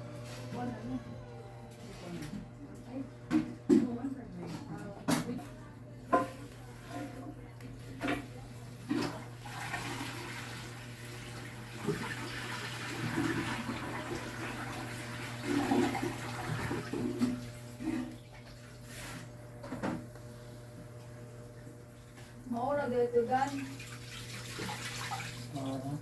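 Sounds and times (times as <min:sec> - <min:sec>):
toilet flushing: 0:08.0 - 0:19.3, 0:23.4 - 0:26.0.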